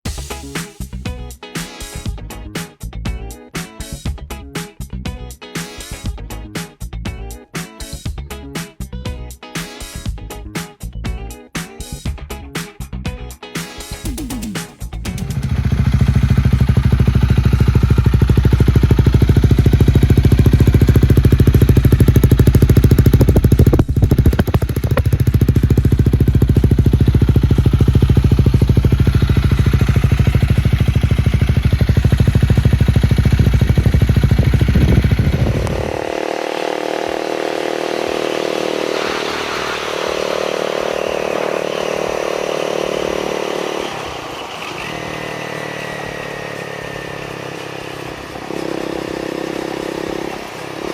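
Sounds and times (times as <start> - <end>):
motorcycle engine running: 14.1 - 50.9.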